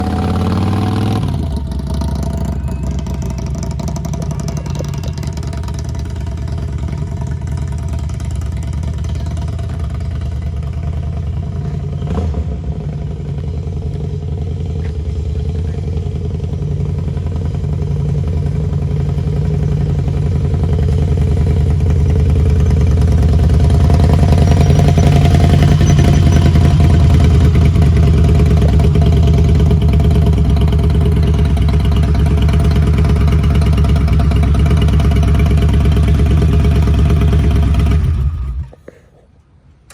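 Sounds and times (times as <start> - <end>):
motorcycle engine running: 0.0 - 38.8.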